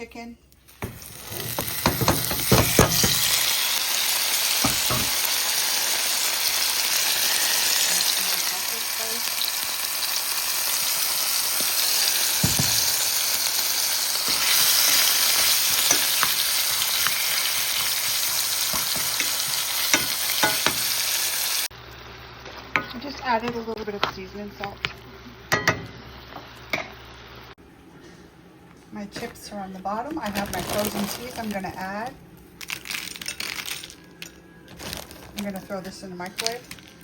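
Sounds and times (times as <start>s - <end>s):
stirring knocks and clicks in pan: 0.8s - 3.3s
chicken sizzling in a frying pan: 0.8s - 23.8s.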